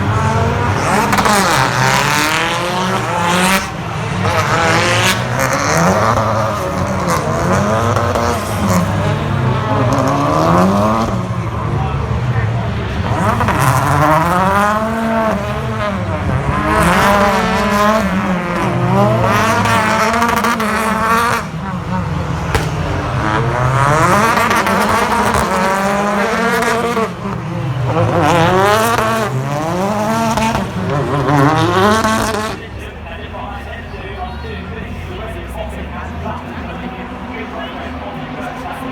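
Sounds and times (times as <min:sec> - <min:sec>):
race car engine revving: 0:00.0 - 0:38.9.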